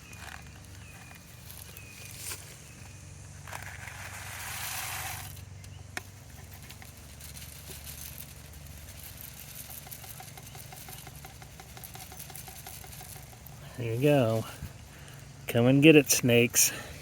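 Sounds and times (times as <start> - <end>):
steady low hum: 0.0 - 17.0
rattling rush of dog food: 6.1 - 15.1.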